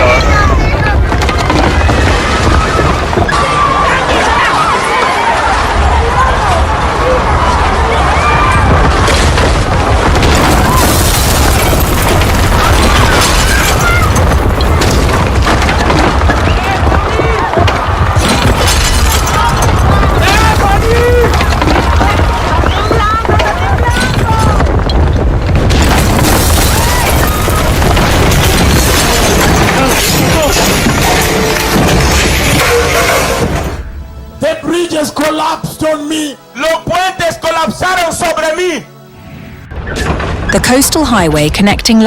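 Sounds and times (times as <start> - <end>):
people shouting: 0.0 - 24.9, 26.0 - 33.4
buildings crashing: 0.0 - 36.0
deep rumbling: 5.5 - 34.4.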